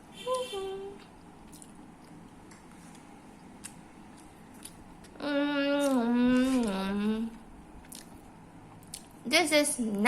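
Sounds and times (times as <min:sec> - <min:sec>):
person humming mmm: 0:05.2 - 0:07.4.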